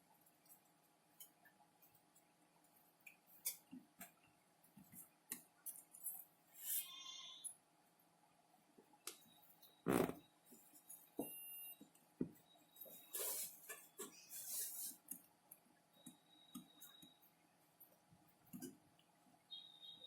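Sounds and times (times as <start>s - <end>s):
small tools clicking and tapping: 3.0s - 4.2s
hissing scrapes: 13.1s - 15.0s.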